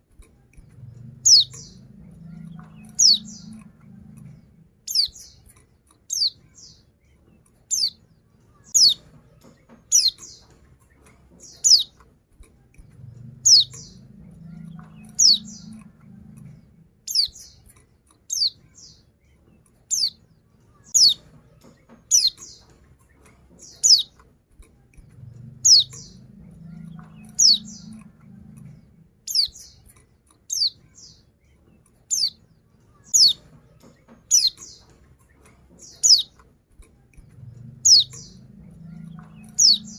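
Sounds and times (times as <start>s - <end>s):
faint low rumble: 0.0s - 39.9s
bird high chirps: 1.2s - 5.5s, 6.1s - 6.9s, 7.7s - 8.0s, 8.6s - 9.2s, 9.8s - 10.6s, 11.4s - 12.0s, 13.4s - 17.7s, 18.3s - 19.1s, 19.9s - 22.8s, 23.6s - 24.2s, 25.5s - 29.9s, 30.5s - 31.3s, 32.1s - 35.0s, 35.8s - 36.4s, 37.7s - 39.9s.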